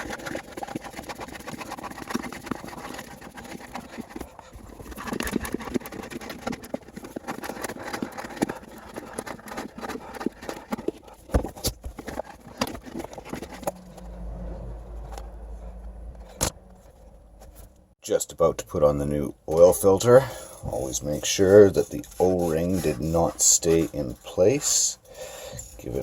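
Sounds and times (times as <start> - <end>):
low steady hum: 13.4 - 18.0.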